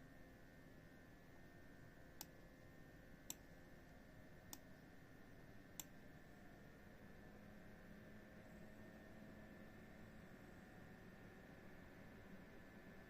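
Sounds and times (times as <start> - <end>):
faint fan whir: 0.0 - 13.0.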